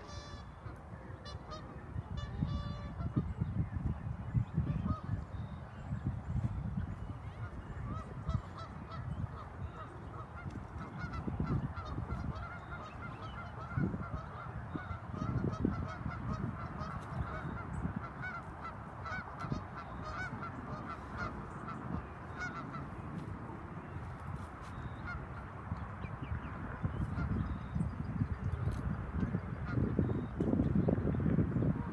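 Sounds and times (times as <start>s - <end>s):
geese honking: 0.0s - 3.5s, 4.6s - 5.7s, 6.6s - 25.7s, 26.9s - 27.8s.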